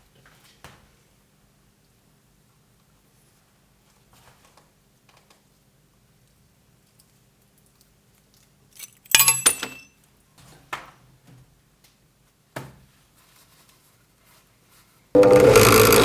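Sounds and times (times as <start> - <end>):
glass-like clink and clatter: 9.2 - 9.9.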